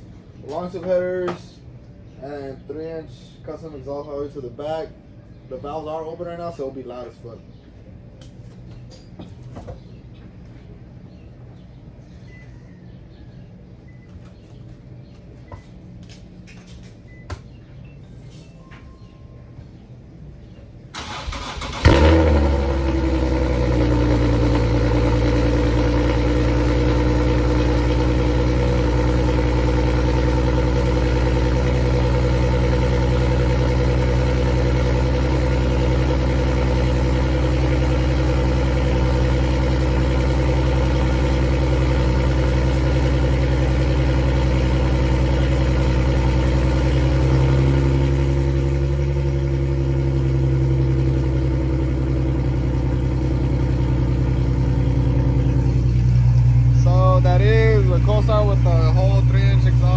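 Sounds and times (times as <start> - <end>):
engine cranking: 21.0 - 24.2
engine starting with loud flare: 21.0 - 24.2
loud engine idle: 21.0 - 59.9.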